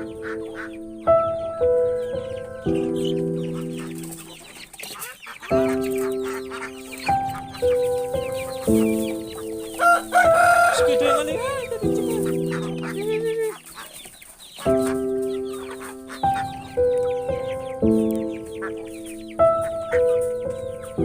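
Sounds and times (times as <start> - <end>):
music of held chords: 0.0 - 4.6, 5.5 - 13.8, 14.6 - 21.0
chickens clucking: 0.0 - 21.0
rooster-like call: 9.8 - 11.7.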